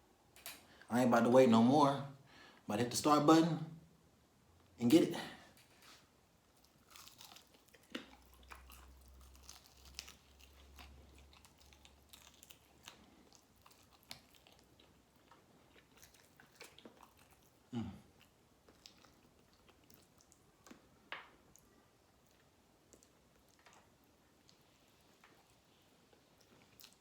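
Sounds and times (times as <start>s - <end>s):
chewing chicken wings: 6.6s - 20.8s, 21.5s - 27.0s
teeth crunching on bone: 6.6s - 25.5s.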